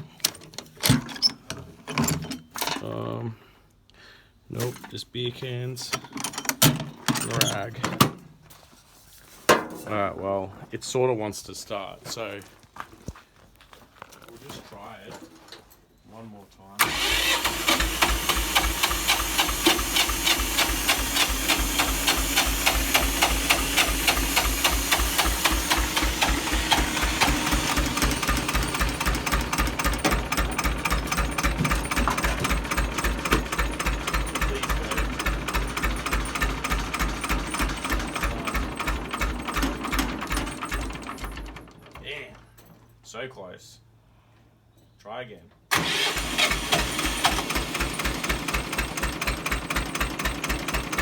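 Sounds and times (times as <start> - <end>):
tractor engine turning over: 16.8 - 42.1, 45.7 - 51.0.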